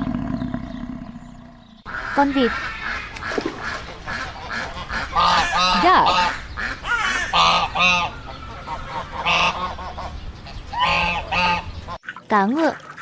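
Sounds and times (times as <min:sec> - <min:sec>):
duck quacking: 0:01.9 - 0:12.0.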